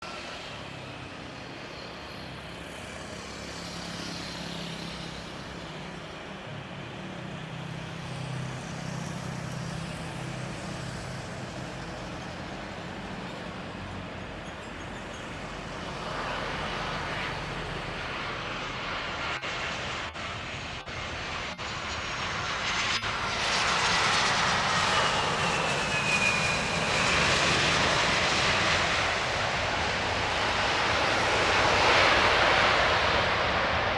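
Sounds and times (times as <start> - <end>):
jet airliner engine noise: 0.0 - 33.9.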